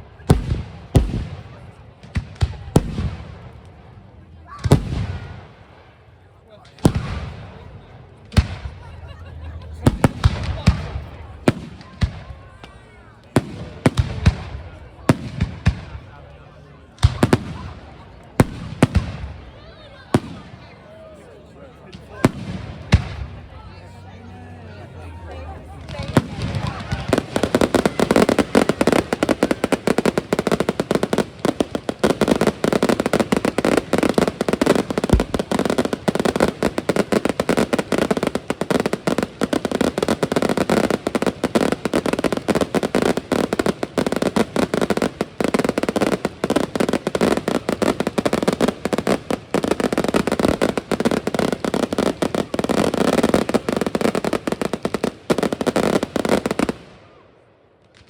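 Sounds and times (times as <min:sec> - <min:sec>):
fireworks banging and crackling: 0:00.0 - 0:58.0.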